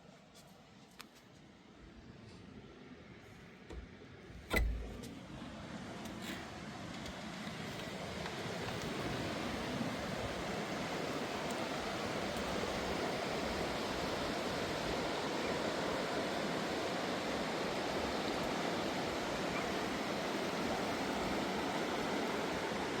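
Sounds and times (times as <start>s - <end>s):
fast river rushing: 6.7s - 23.0s.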